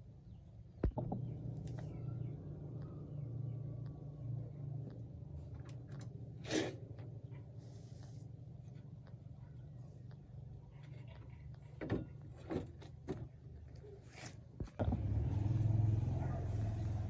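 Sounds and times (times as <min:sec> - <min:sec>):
sharp clicks and knocks: 0:00.8 - 0:02.0
small gasoline engine humming: 0:14.8 - 0:17.0.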